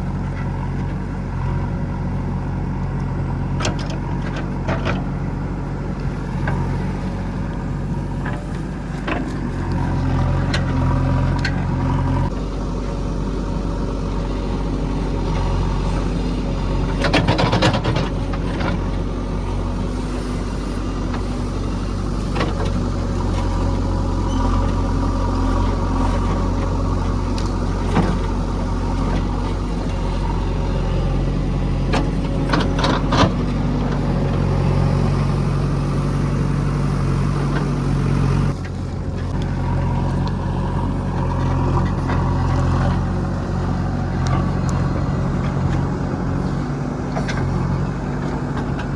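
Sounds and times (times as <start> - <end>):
heavy diesel engine running: 0.0 - 48.9
short clanks and knocks: 16.9 - 18.9.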